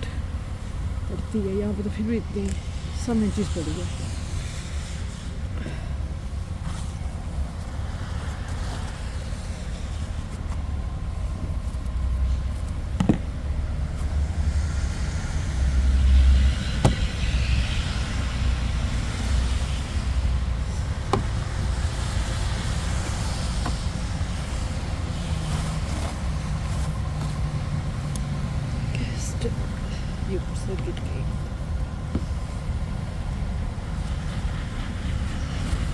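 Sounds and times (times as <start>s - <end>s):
snow being cleared off a car: 3.1s - 12.9s.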